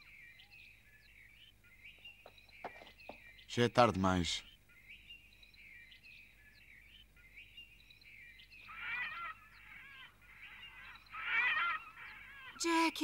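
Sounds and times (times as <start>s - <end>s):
small birds chirping: 0.0s - 13.0s
bird warbling: 8.6s - 13.0s.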